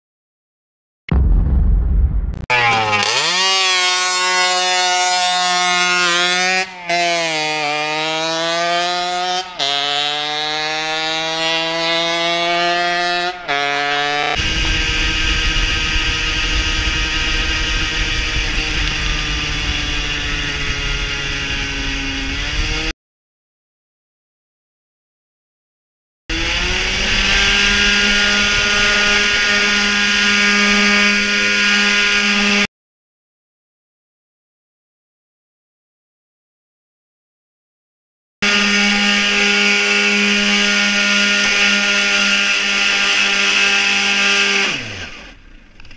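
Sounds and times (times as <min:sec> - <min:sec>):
two-stroke engine revving high: 0:02.5 - 0:22.9, 0:26.3 - 0:32.7, 0:38.4 - 0:45.9.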